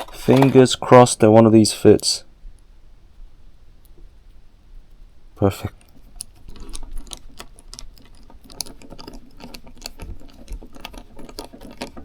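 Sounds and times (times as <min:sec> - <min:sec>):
screw clicking and scraping: 0:05.8 - 0:12.0.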